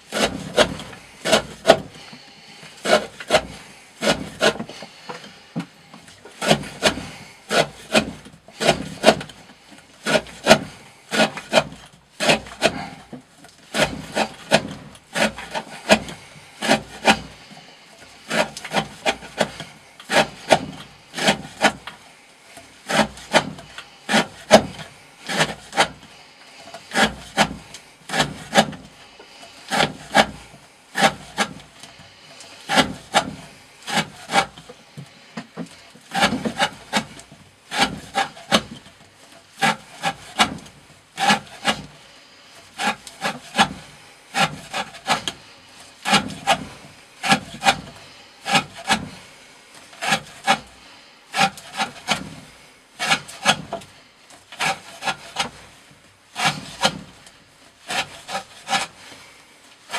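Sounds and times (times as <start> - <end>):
knife slicing through rope: 0.1 - 2.0, 2.8 - 4.8, 6.4 - 9.4, 10.0 - 17.5, 18.1 - 22.0, 22.9 - 26.1, 26.7 - 28.9, 29.7 - 34.7, 36.1 - 38.9, 39.5 - 42.0, 42.7 - 45.4, 46.0 - 49.3, 49.9 - 50.7, 51.3 - 52.4, 53.0 - 53.9, 54.5 - 55.7, 56.4 - 57.2, 57.8 - 59.1.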